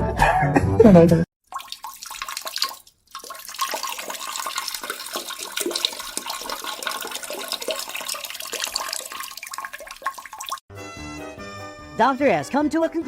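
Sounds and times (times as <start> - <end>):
rushing splashing water: 1.5 - 10.6.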